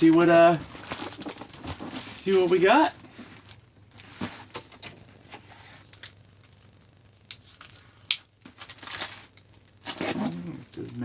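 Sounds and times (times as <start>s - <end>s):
packaging rustling: 0.0s - 6.1s, 8.4s - 11.0s.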